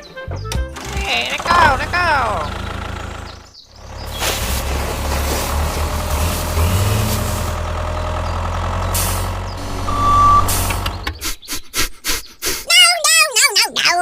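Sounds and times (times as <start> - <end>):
tractor engine rumble: 0.8 - 11.8
short beep: 9.6 - 10.9.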